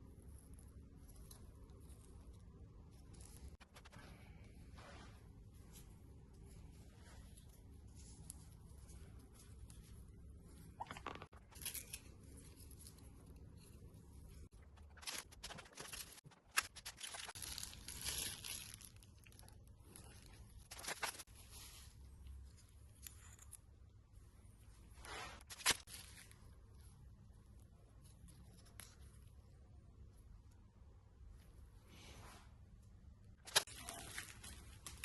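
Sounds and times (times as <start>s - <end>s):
packaging rustling and tearing: 14.8s - 19.5s, 20.6s - 21.3s.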